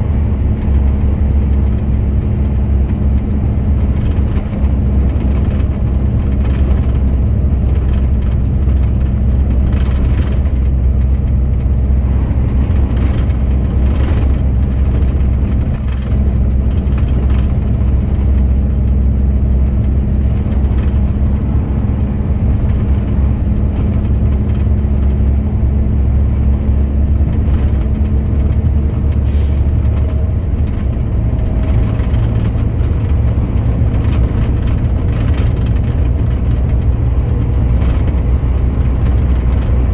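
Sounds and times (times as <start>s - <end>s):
truck engine running: 0.0s - 39.9s
tyre and road noise: 0.0s - 39.9s.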